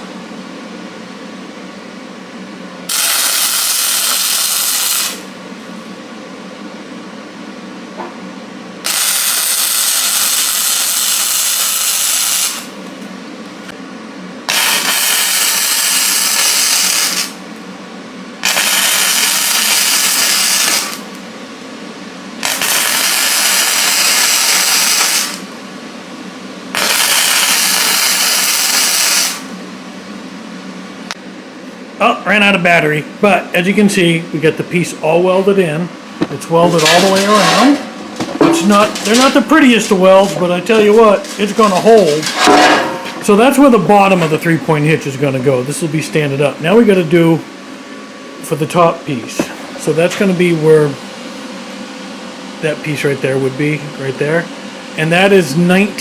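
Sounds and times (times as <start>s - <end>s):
steady low hum: 0.0s - 11.2s, 12.5s - 56.0s
arc welding crackling and hissing: 2.9s - 5.4s, 8.8s - 13.1s, 14.5s - 17.6s, 18.4s - 21.3s, 22.4s - 25.6s, 26.7s - 29.7s, 33.6s - 47.4s.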